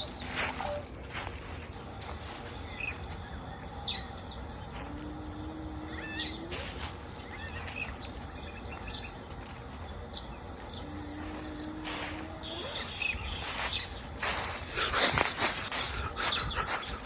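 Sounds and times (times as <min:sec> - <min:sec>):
birds chirping: 0:00.0 - 0:17.0
low tone sliding upward: 0:04.9 - 0:06.6.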